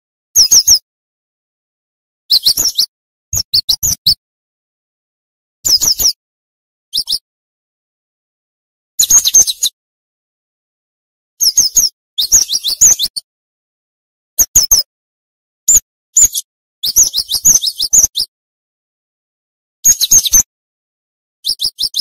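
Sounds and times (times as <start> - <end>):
bird chirping rapidly: 0.4 - 0.8, 2.3 - 4.2, 5.6 - 6.2, 6.9 - 7.2, 9.0 - 9.8, 11.4 - 13.2, 14.4 - 14.9, 15.7 - 18.3, 19.8 - 20.5, 21.4 - 22.0.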